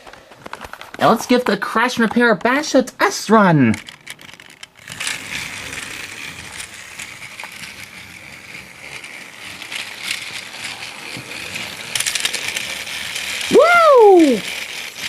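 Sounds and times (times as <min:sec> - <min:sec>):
toy train motor whirring: 0:01.0 - 0:15.0
toy clicks: 0:02.0 - 0:15.0.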